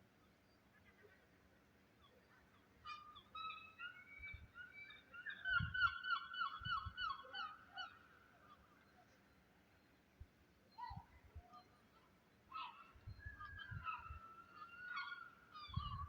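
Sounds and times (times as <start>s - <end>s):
bird calling: 10.7s - 16.0s.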